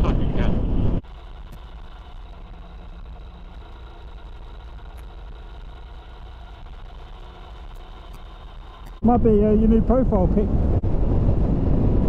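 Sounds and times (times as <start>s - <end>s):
motorcycle engine running: 1.0s - 9.9s.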